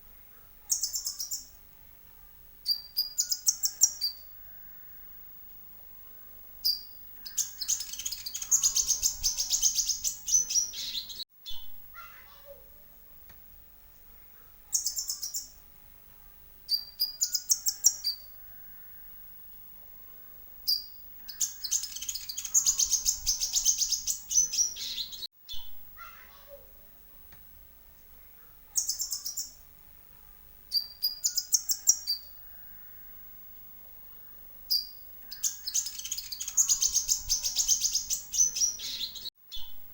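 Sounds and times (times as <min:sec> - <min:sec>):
birds trilled chirping: 0:00.2 - 0:01.6, 0:02.6 - 0:05.2, 0:06.6 - 0:12.2, 0:14.2 - 0:15.6, 0:16.7 - 0:19.3, 0:20.7 - 0:26.2, 0:28.4 - 0:29.7, 0:30.7 - 0:33.2, 0:34.7 - 0:39.8.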